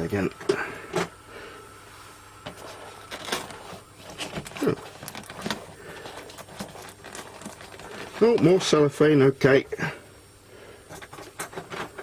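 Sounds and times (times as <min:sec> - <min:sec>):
cellophane wrapping rustling: 0:02.5 - 0:09.0.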